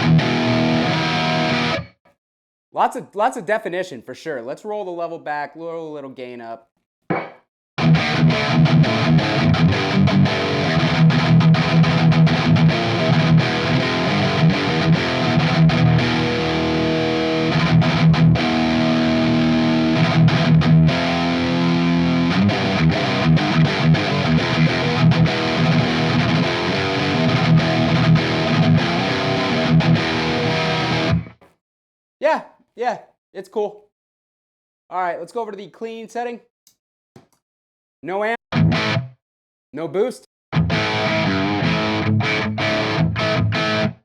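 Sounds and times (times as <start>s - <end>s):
distorted electric guitar riffs: 0.0s - 2.0s, 7.8s - 31.4s, 38.5s - 39.2s, 40.6s - 44.0s.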